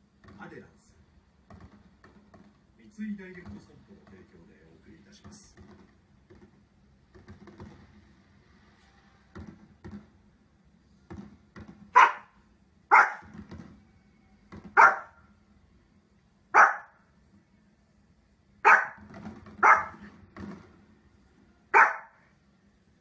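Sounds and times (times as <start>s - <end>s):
small dog barking: 11.9s - 13.3s, 14.7s - 15.2s, 16.5s - 17.0s, 18.6s - 19.0s, 19.6s - 20.1s, 21.7s - 22.2s.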